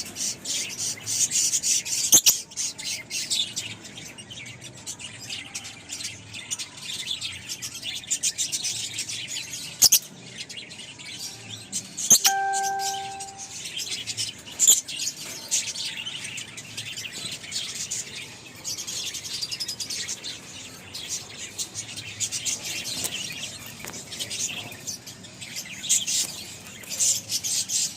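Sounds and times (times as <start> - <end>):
lovebirds chirping: 12.1 - 13.6.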